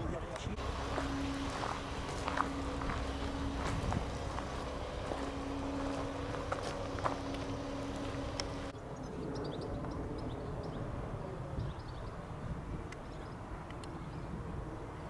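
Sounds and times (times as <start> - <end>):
birds chirping: 0.0 - 10.9
truck engine droning: 0.4 - 8.7.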